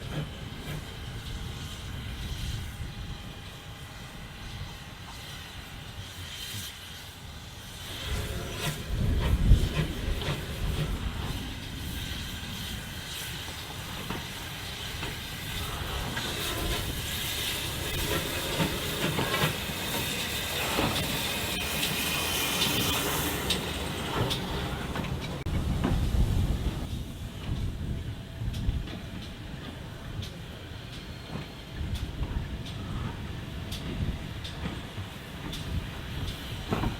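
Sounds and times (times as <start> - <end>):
steam locomotive hissing: 0.0 - 36.9
train low rumble: 0.0 - 36.9.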